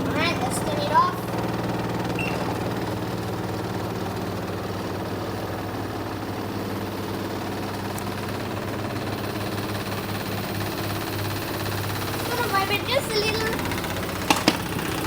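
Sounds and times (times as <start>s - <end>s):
washing machine spinning: 0.0s - 15.0s
short high beep: 2.2s - 2.6s.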